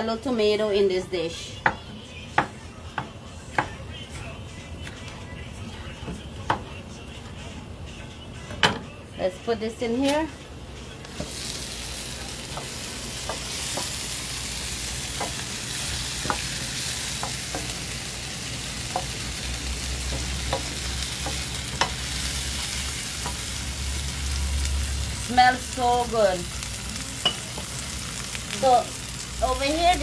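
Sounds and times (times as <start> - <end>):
vegetables sizzling in oil: 11.0 - 30.0.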